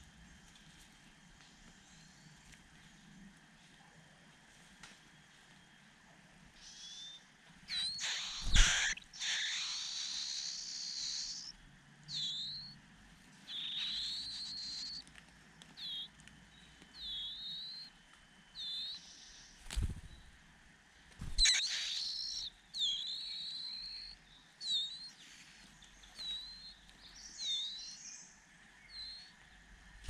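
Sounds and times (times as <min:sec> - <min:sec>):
bird chirping: 0:06.6 - 0:12.8, 0:13.4 - 0:15.2, 0:15.8 - 0:20.4, 0:21.2 - 0:30.0
harsh bird call: 0:07.7 - 0:11.5, 0:21.4 - 0:24.2.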